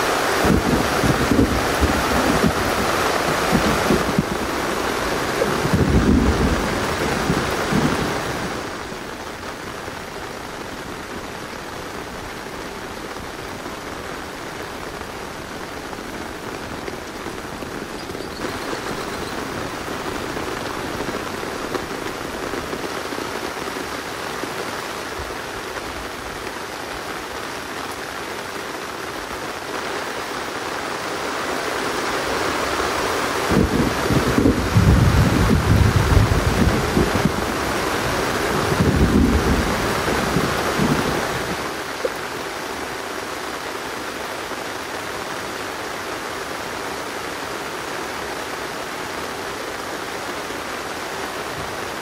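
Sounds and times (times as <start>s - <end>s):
steady rain falling: 0.0s - 52.0s
wind buffeting microphone: 0.4s - 8.8s, 33.5s - 41.7s.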